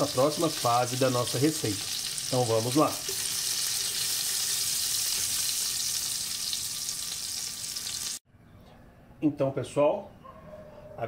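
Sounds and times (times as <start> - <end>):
meat sizzling in hot fat: 0.0 - 8.2.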